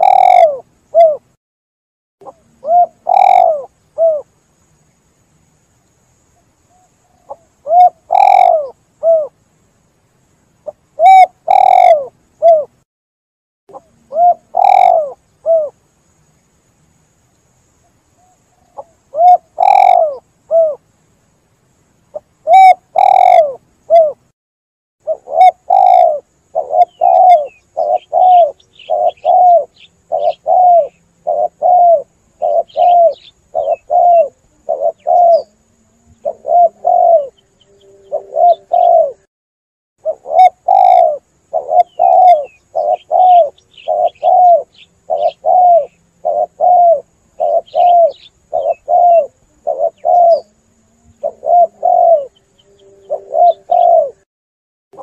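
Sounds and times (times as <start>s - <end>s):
dove cooing: 0.0s - 1.3s, 2.2s - 4.3s, 6.7s - 9.4s, 10.6s - 12.8s, 13.7s - 15.8s, 18.2s - 20.8s, 22.1s - 24.2s, 25.0s - 39.3s, 40.0s - 54.3s
high chirps of small birds: 25.1s - 35.5s, 40.6s - 50.5s.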